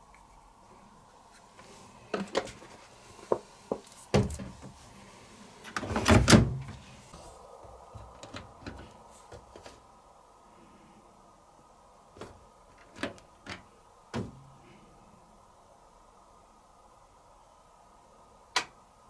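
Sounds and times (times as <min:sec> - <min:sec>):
plastic drawer clicks and knocks: 0:05.8 - 0:06.8
drawer rattling slide and knock: 0:05.8 - 0:07.1.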